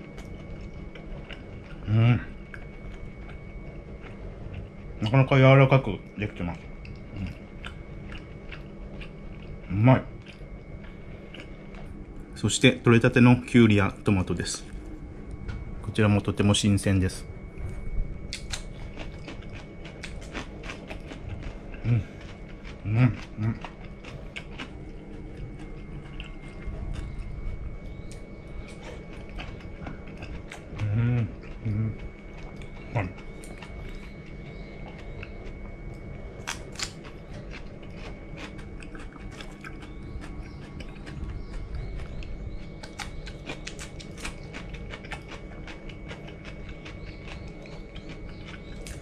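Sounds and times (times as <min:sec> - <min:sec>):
person chewing with mouth closed: 0:00.0 - 0:05.2, 0:06.5 - 0:12.1, 0:17.6 - 0:49.0
low hum: 0:00.0 - 0:49.0
crisp cucumber crunching: 0:18.3 - 0:49.0.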